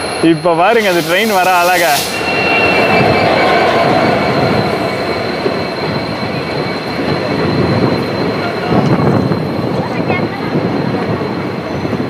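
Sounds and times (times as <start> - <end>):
thin high squeal: 0.0 - 9.6
train wheels clattering on rails: 0.0 - 12.0.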